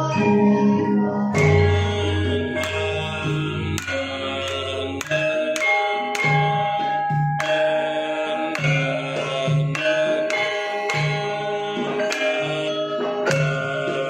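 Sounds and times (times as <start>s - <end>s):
metallophones ringing: 0.0s - 14.0s
hand drum strokes: 1.3s - 14.0s.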